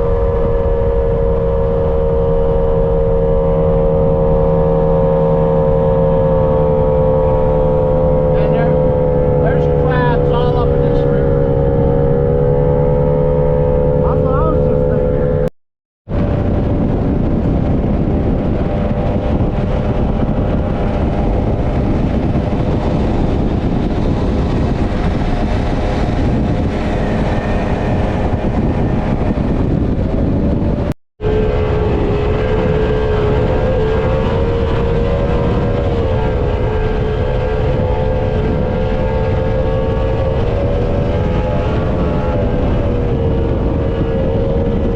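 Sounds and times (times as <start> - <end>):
dense rushing noise: 0.0 - 15.5
powerboat engine running: 0.0 - 44.9.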